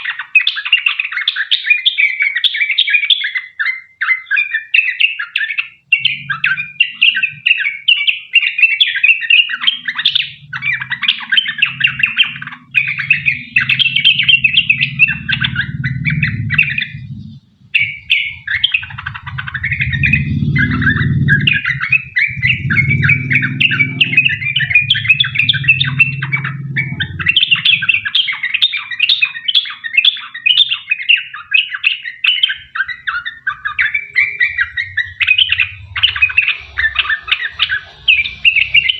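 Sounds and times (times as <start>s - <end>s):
bird singing chattering runs: 0.0s - 38.9s
low rumble: 9.6s - 28.6s, 33.5s - 38.9s.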